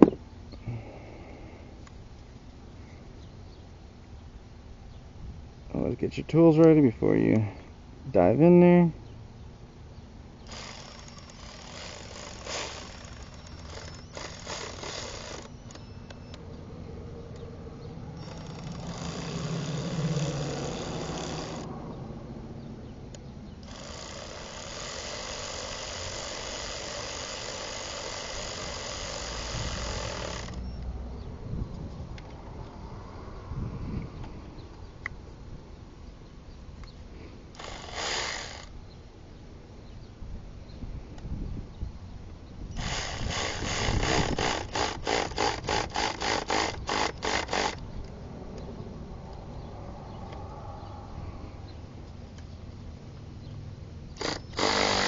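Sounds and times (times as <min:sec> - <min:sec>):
hand ratchet wrench clicking: 0:10.5 - 0:16.4, 0:18.2 - 0:21.7, 0:23.6 - 0:30.6, 0:37.5 - 0:38.7, 0:42.8 - 0:47.8, 0:54.2 - 0:55.0.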